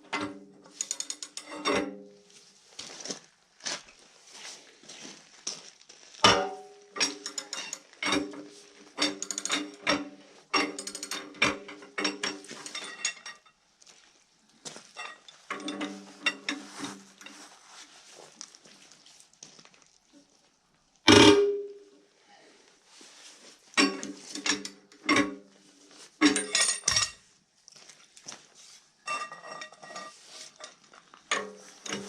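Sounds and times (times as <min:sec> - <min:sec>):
metallic clanks of tools on steel: 0:00.1 - 0:02.1, 0:06.2 - 0:13.6, 0:15.0 - 0:17.4, 0:21.1 - 0:21.8, 0:23.8 - 0:25.5, 0:26.2 - 0:27.2, 0:29.1 - 0:32.0.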